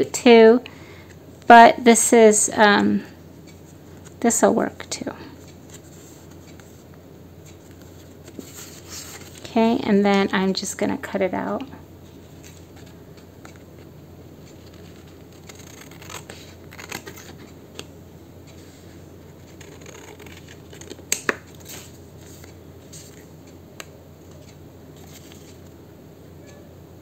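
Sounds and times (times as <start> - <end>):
scissors cutting paper: 14.4 - 17.5, 19.4 - 21.9.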